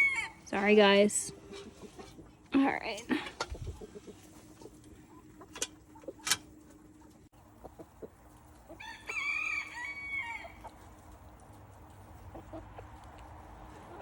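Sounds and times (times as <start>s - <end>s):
rooster crowing: 0.0s - 0.4s, 8.8s - 10.6s.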